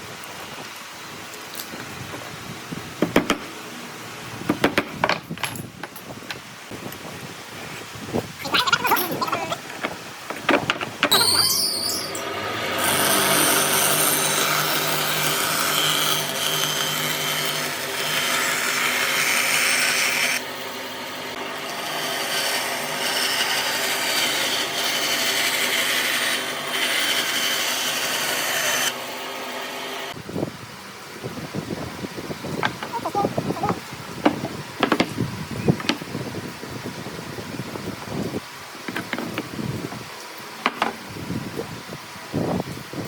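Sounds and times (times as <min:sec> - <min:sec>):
power tool motor hum: 0:11.1 - 0:20.4.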